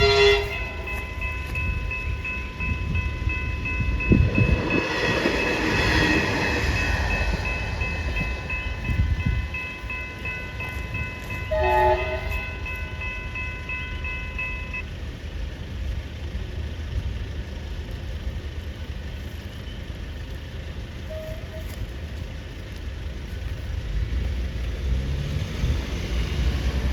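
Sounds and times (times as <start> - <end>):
train horn blast: 0.0 - 1.2, 10.6 - 12.9, 21.0 - 21.8
level crossing bells ringing: 0.0 - 15.1
road traffic rumble: 0.0 - 26.9
train passing: 0.0 - 26.9.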